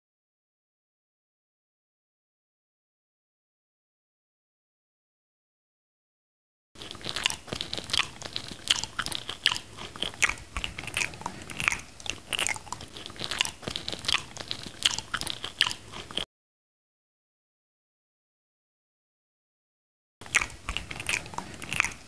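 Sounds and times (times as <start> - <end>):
person biting and chewing: 6.8 - 16.3, 20.2 - 22.0.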